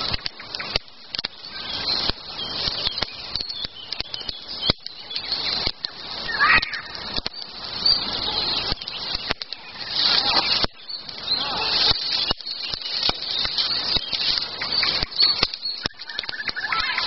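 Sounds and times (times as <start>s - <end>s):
small birds chirping: 0.0s - 17.0s
twigs rustling and snapping: 0.0s - 17.0s.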